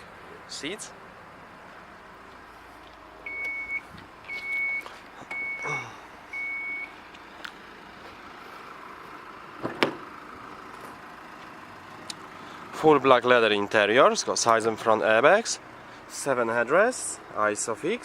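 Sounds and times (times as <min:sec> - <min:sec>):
high electronic warning beeps: 0:03.3 - 0:07.0
sharp thump: 0:09.6 - 0:10.1.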